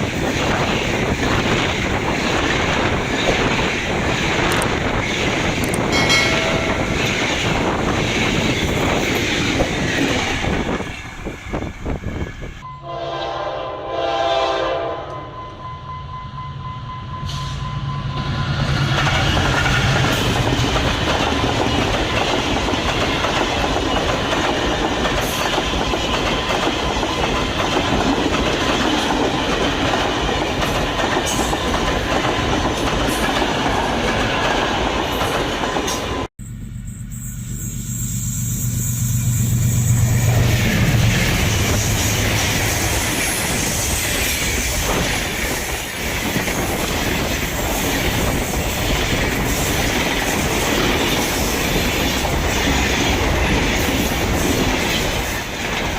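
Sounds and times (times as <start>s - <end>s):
train wheels clattering: 0.0s - 12.5s, 18.6s - 36.3s
locomotive horn: 12.6s - 17.6s.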